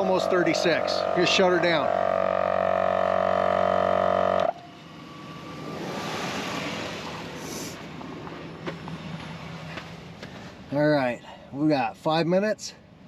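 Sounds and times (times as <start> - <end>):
air compressor humming: 0.0 - 4.7.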